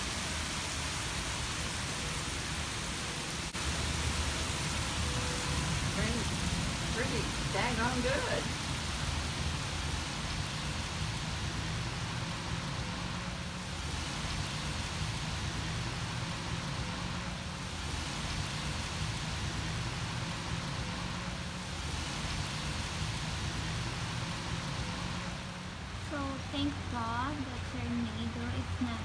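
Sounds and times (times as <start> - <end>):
rain falling on water: 0.0 - 29.0.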